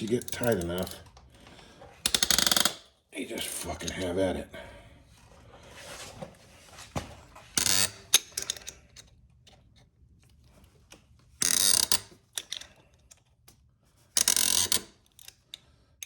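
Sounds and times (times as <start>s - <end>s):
wrench ratcheting: 2.0s - 2.8s, 7.6s - 8.8s, 11.4s - 12.7s, 14.2s - 15.5s.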